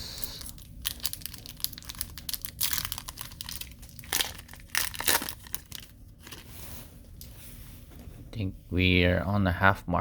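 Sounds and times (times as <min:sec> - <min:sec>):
foil wrapper crinkling: 0:00.2 - 0:06.6.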